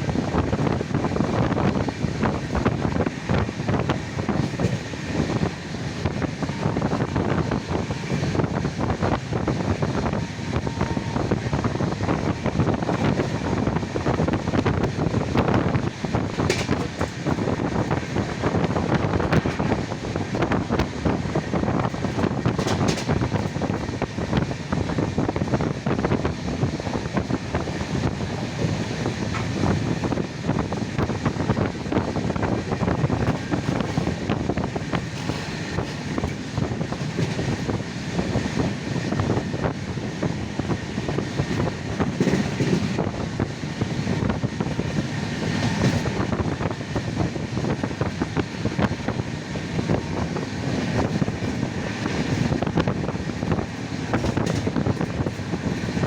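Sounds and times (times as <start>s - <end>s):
moving vehicle rumbling and rattling: 0.0s - 56.0s.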